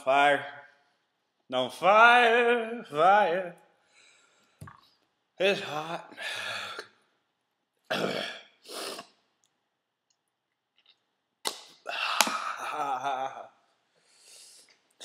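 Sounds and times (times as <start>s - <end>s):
man groaning: 11.9s - 13.6s.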